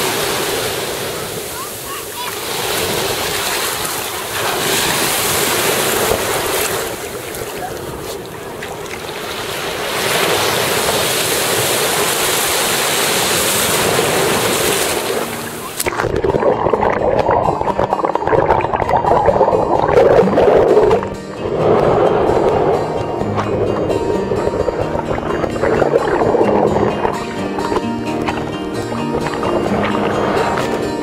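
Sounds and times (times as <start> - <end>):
ocean surf washing in: 0.0 - 31.0
music: 15.2 - 31.0
wind buffeting microphone: 16.0 - 31.0.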